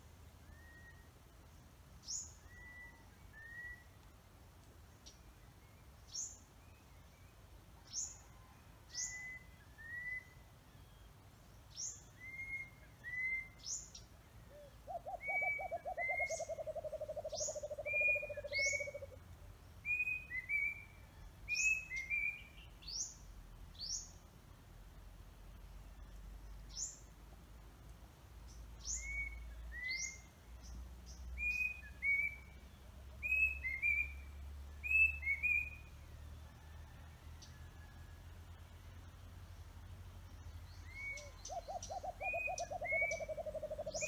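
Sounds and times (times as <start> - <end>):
bird whistling calls: 2.5 - 3.9, 14.9 - 19.1, 31.4 - 32.5, 33.2 - 35.9, 40.8 - 44.0.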